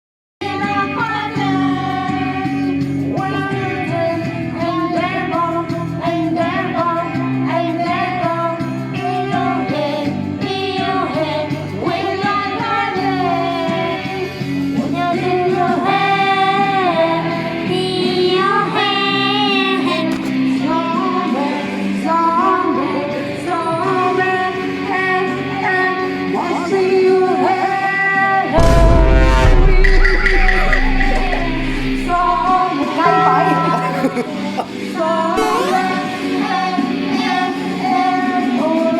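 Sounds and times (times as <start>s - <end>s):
woman singing: 0.4s - 28.6s, 31.1s - 38.9s
instrumental accompaniment: 28.6s - 34.7s, 35.4s - 36.3s.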